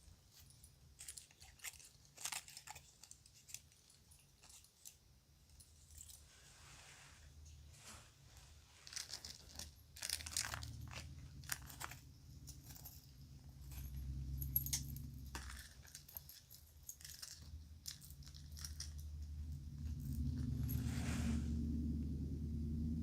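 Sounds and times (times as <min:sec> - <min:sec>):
low background hum: 0:00.0 - 0:23.0
jewelry clicking and clinking: 0:00.3 - 0:06.3, 0:08.8 - 0:20.9
bag crinkling: 0:08.8 - 0:12.0.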